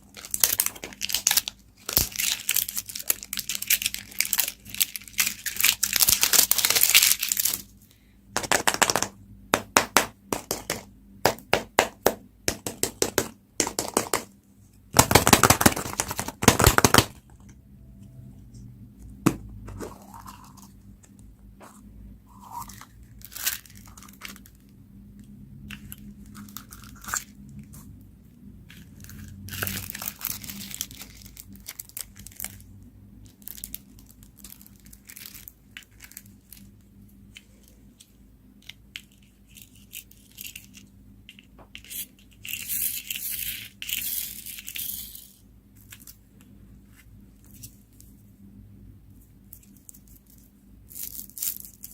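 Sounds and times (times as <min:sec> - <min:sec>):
packaging crinkling and tearing: 0:00.1 - 0:07.7, 0:28.8 - 0:32.7, 0:33.3 - 0:36.8.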